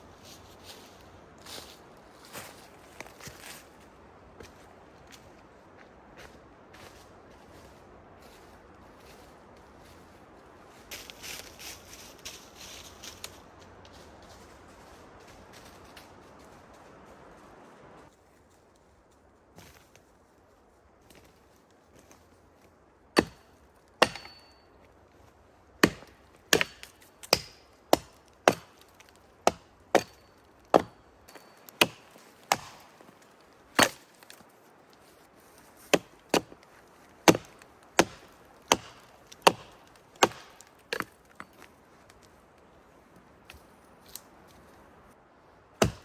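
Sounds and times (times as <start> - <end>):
blade chopping into wood: 23.2 - 23.4, 24.0 - 24.6, 25.8 - 34.3, 35.9 - 36.6, 37.2 - 41.2, 45.8 - 46.0
high metallic ring: 24.2 - 24.8.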